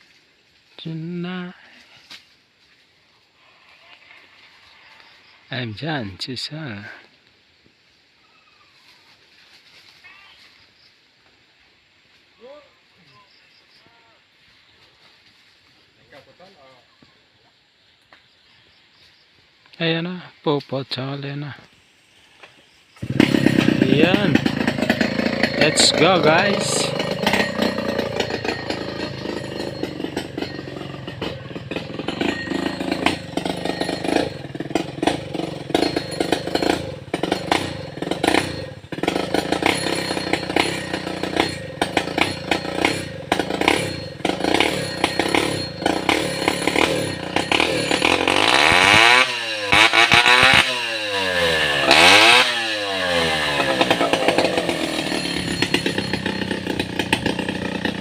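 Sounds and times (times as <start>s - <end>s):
chainsaw cutting wood: 23.0s - 58.0s.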